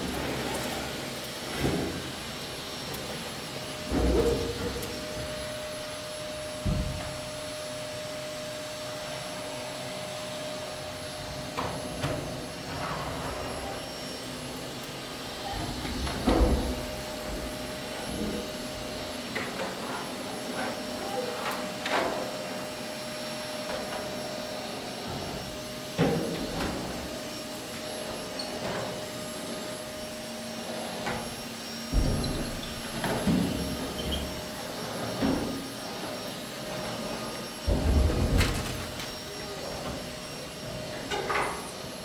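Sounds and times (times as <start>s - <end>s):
vacuum cleaner running: 0.0s - 42.0s.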